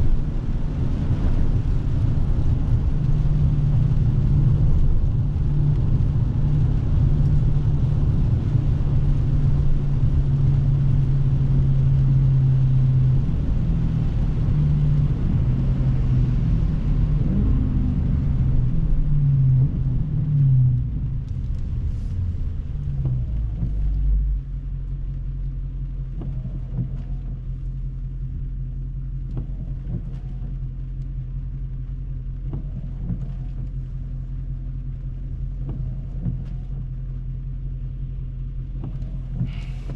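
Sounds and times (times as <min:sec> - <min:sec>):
car engine running: 0:00.0 - 0:39.9
faint light ticks: 0:20.3 - 0:39.9
tyre hiss on wet road: 0:39.4 - 0:39.9.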